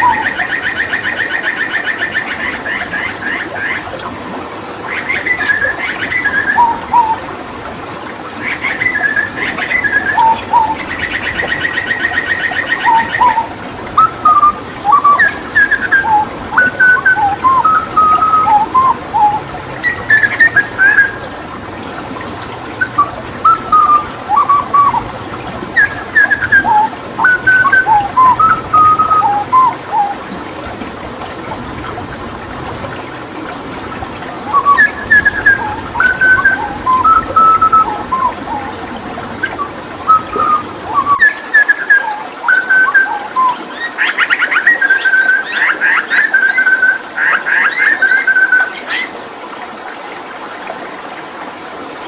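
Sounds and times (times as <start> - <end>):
bird fluting song: 0.0 - 3.8, 4.9 - 7.2, 8.4 - 21.4, 22.8 - 25.1, 25.8 - 30.2, 34.5 - 38.8, 39.4 - 49.1
running water hiss: 0.0 - 52.0.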